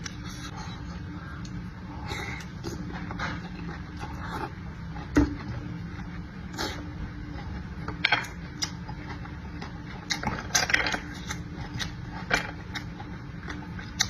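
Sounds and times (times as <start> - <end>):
steady low hum: 0.0 - 14.0
chewing smacks and clicks: 12.7 - 14.0.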